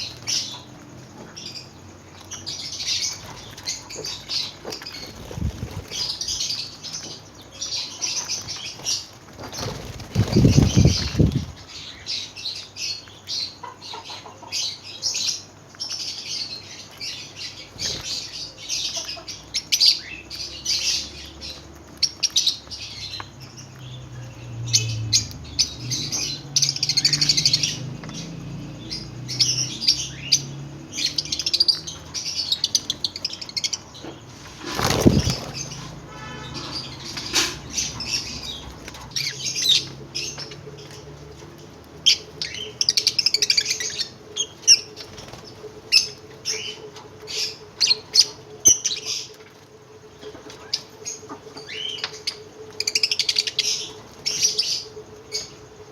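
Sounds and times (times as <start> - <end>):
lovebirds chirping: 0.0 - 55.9.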